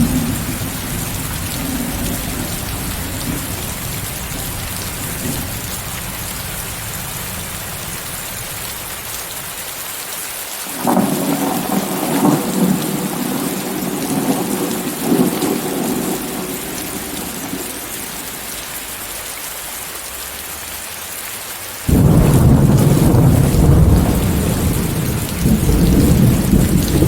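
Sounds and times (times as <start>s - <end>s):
loud deep thunder rumble: 0.0s - 8.0s, 10.8s - 18.3s, 21.9s - 27.0s
rolling thunder: 0.0s - 8.6s, 10.8s - 18.5s, 21.9s - 27.0s
heavy rain hiss: 0.0s - 27.0s.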